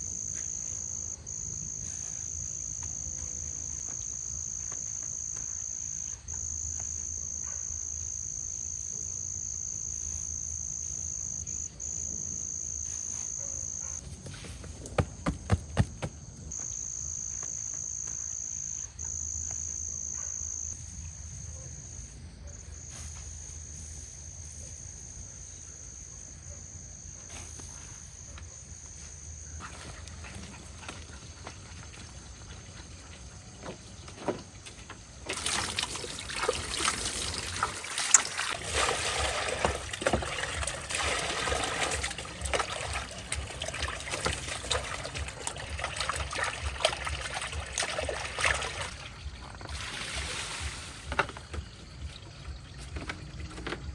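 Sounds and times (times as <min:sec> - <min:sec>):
high-pitched insect trill: 0:00.0 - 0:15.8, 0:16.5 - 0:53.0
trickling splashing water: 0:35.2 - 0:53.9.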